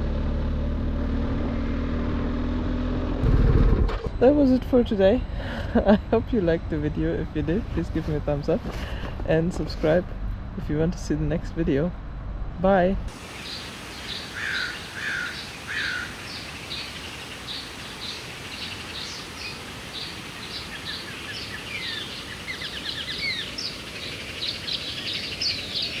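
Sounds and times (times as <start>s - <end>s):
steady background hiss: 12.6s - 26.0s
small birds chirping: 13.1s - 26.0s.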